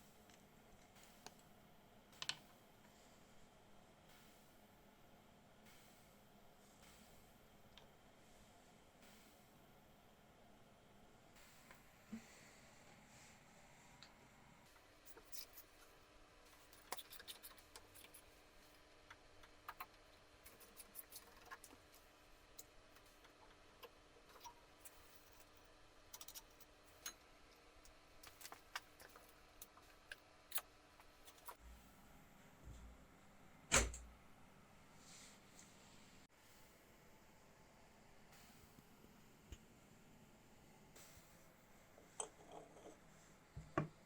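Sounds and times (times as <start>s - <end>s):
small clicks and taps: 2.2s - 3.0s.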